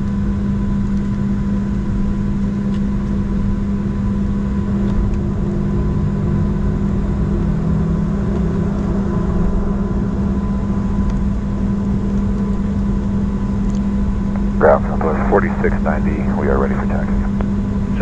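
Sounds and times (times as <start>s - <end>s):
jet engines idling: 13.9s - 18.0s
cabin air hum: 14.3s - 18.0s.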